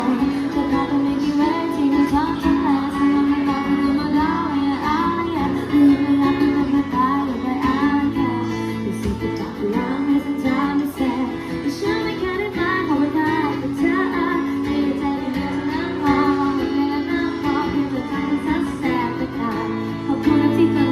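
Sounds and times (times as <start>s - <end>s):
acoustic guitar: 0.0s - 20.9s
woman singing: 0.0s - 20.9s.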